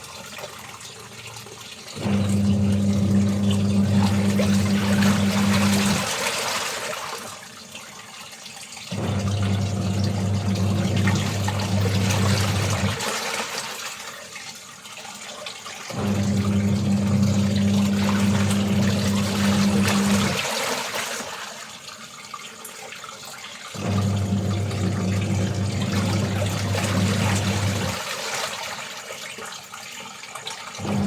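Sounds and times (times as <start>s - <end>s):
water churning: 1.8s - 7.4s, 8.9s - 14.4s, 15.2s - 22.0s, 23.7s - 29.6s, 30.5s - 31.0s
washing machine motor hum: 2.0s - 7.2s, 8.9s - 14.0s, 15.9s - 21.3s, 23.8s - 28.8s, 30.8s - 31.0s.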